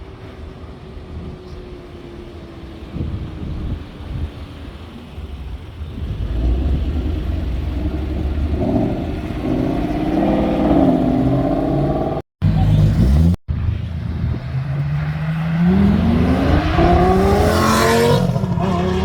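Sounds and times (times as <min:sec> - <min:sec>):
car engine revving: 0:04.4 - 0:19.0.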